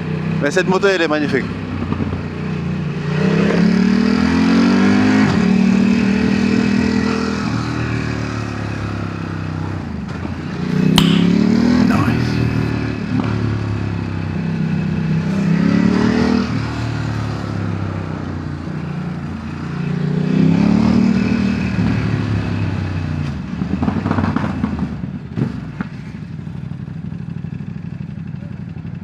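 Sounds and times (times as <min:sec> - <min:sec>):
sharp click: 0:11.0 - 0:11.8.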